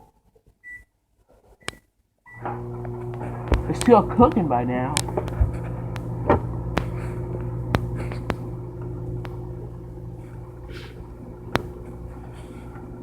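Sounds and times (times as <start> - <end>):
microwave oven humming: 2.3 - 13.0
microwave clicks: 2.4 - 10.0, 11.2 - 11.9.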